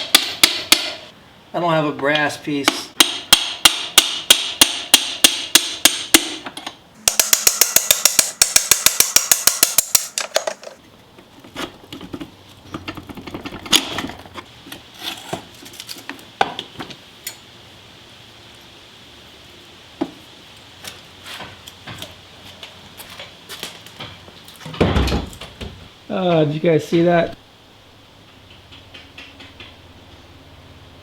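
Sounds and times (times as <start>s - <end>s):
hammer striking metal bolt: 0.0s - 1.1s, 2.7s - 10.8s.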